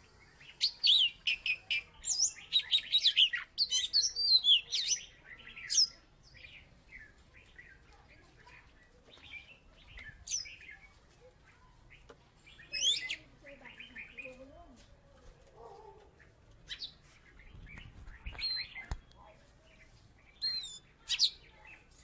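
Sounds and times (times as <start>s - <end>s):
songbird whistling: 12.6s - 14.2s, 17.8s - 18.9s, 20.4s - 21.4s.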